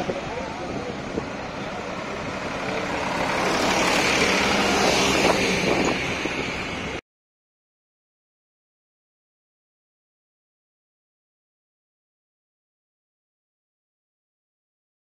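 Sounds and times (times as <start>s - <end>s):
tractor diesel engine running: 0.0s - 7.0s.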